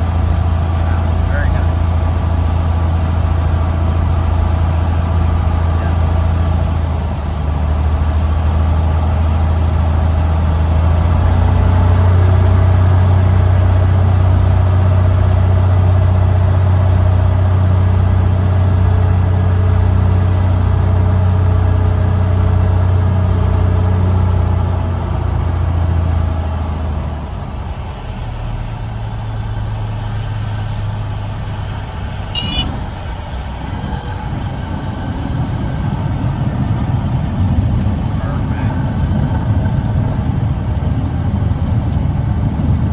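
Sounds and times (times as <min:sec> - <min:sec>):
light aircraft engine droning: 0:00.0 - 0:42.9.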